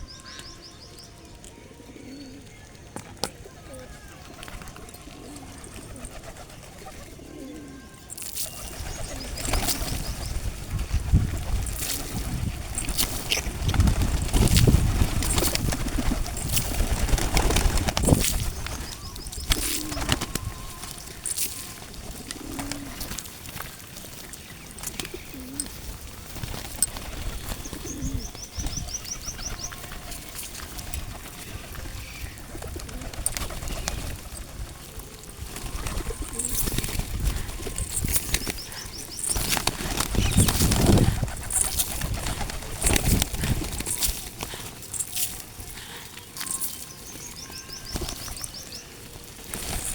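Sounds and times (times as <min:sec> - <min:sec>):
pigeons cooing: 0:01.4 - 0:49.9
wings flapping: 0:03.1 - 0:49.9.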